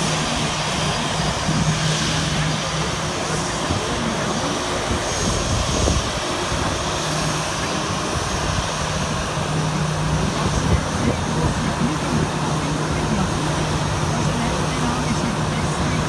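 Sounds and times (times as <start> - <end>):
airliner engine rushing: 0.0 - 16.0.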